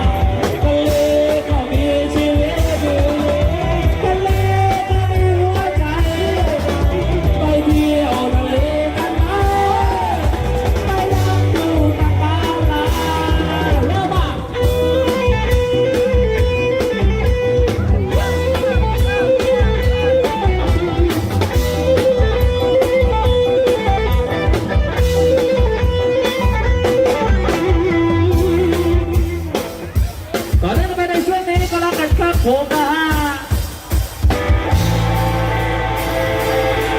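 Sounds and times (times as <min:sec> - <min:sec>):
amplified live band music: 0:00.0 - 0:36.9
electric guitar: 0:00.0 - 0:36.9.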